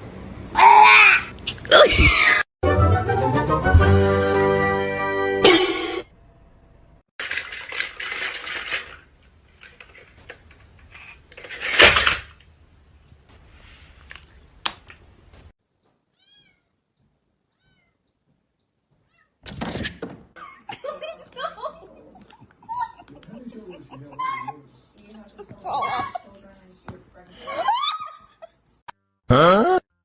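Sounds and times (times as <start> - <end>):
cat sounds: 17.5 - 18.1.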